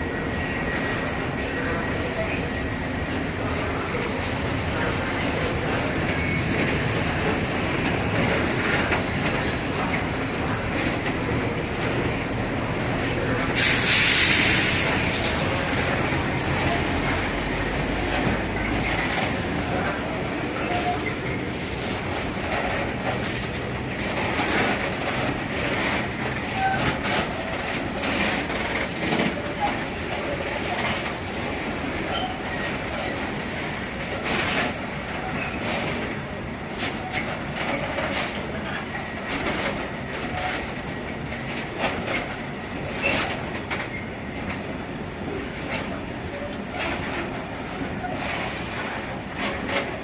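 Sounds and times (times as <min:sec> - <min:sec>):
freight train rumbling: 0:00.0 - 0:50.0
loud hiss: 0:13.6 - 0:15.7.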